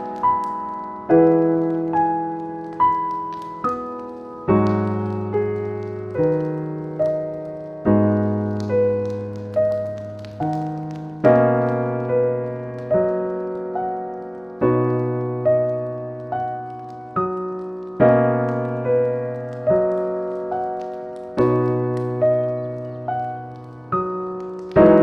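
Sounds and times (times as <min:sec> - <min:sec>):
slow solo piano: 0:00.0 - 0:25.0.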